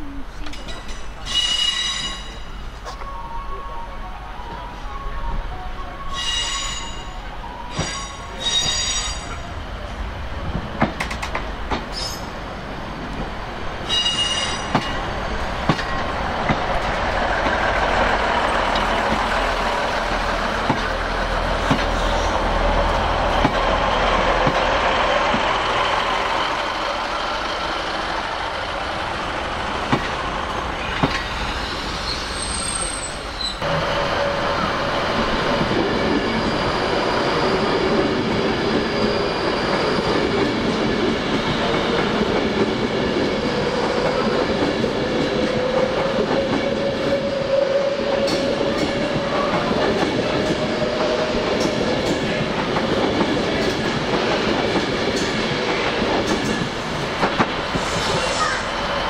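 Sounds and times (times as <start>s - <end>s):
rumble of wheels on rail: 0.0s - 59.0s
train wheel squeals: 0.9s - 3.2s, 6.0s - 9.5s, 11.9s - 12.3s, 13.8s - 15.1s, 30.8s - 42.3s, 57.7s - 59.0s.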